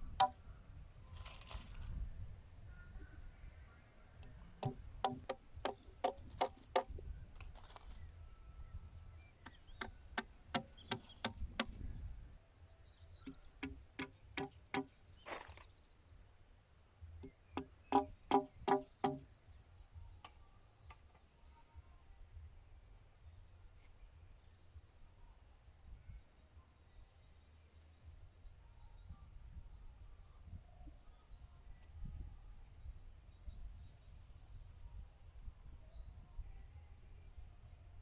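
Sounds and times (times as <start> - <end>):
hammer driving nails into wood: 4.6 - 7.0, 9.8 - 11.8, 13.6 - 15.0, 17.2 - 19.3.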